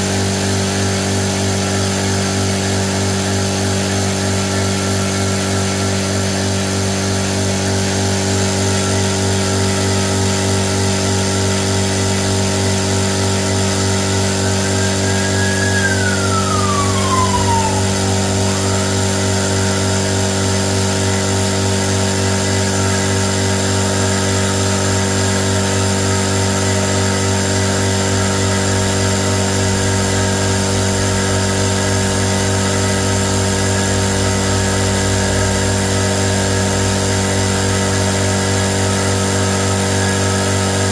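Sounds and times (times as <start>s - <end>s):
steady mechanical hum: 0.0s - 40.9s
tone sliding down in pitch: 14.3s - 19.3s.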